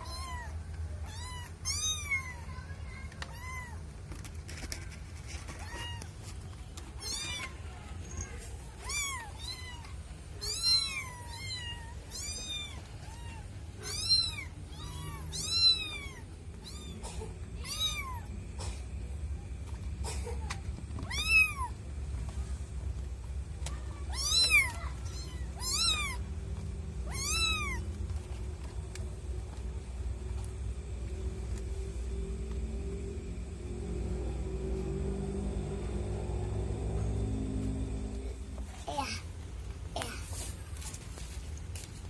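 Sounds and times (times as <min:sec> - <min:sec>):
kitten meowing: 0:00.0 - 0:02.4, 0:07.0 - 0:07.6, 0:08.8 - 0:17.0, 0:21.0 - 0:21.7, 0:24.1 - 0:26.2, 0:27.0 - 0:27.9.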